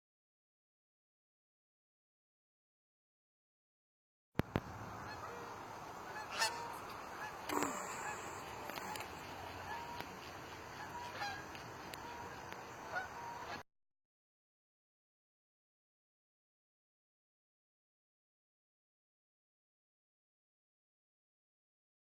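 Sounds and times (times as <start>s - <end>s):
steady outdoor hiss: 4.4s - 13.6s
bird calls: 4.5s - 13.6s.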